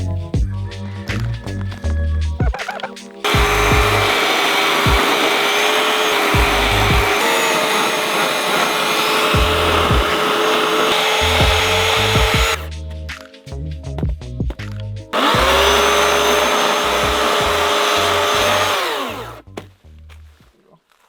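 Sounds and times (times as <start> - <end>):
background music: 0.0 - 20.4
chainsaw engine running: 3.2 - 12.7, 15.2 - 19.4.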